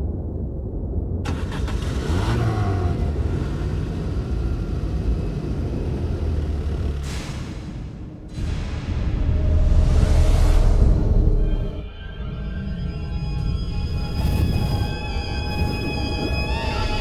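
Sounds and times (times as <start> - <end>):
road noise rush: 1.2 - 11.8
car engine starting and revving: 1.3 - 8.8.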